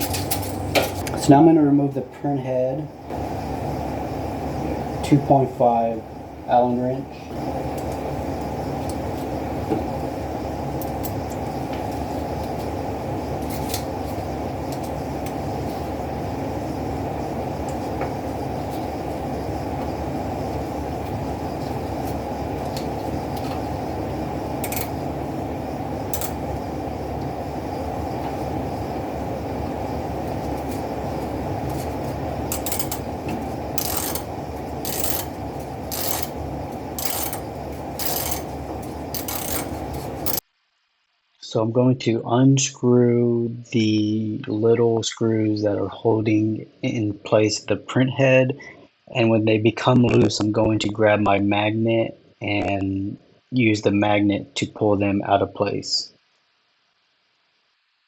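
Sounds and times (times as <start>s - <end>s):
low mechanical hum: 0.0s - 40.6s
sharp clicks: 26.1s - 26.4s.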